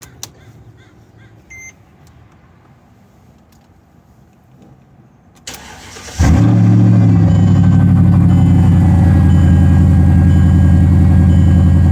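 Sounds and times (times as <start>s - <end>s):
car engine bark and deep idle: 5.5s - 11.9s
short electronic beep: 7.2s - 11.9s.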